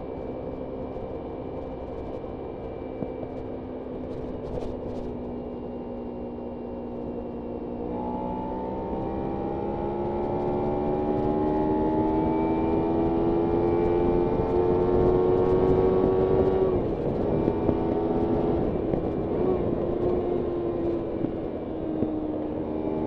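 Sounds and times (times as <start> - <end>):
motorcycle engine revving: 7.7 - 23.0.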